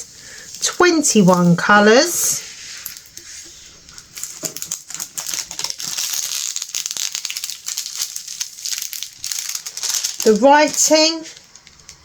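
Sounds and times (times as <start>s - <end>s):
plastic packaging crinkling: 0.0s - 12.0s
small bags rattling: 3.9s - 12.0s.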